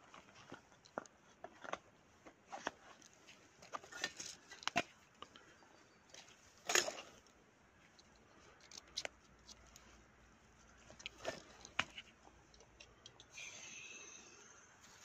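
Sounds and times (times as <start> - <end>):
handling clicks and rattles: 6.1 - 13.3.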